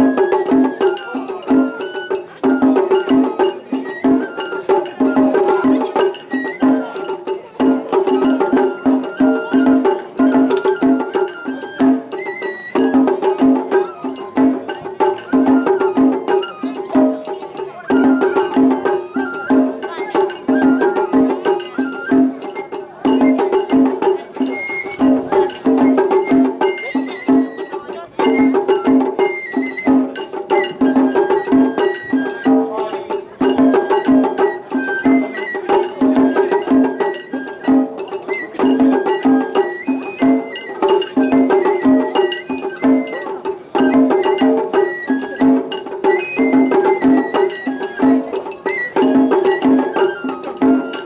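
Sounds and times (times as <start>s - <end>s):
bamboo flute melody: 0.0s - 51.0s
taiko drum strokes: 0.0s - 51.0s.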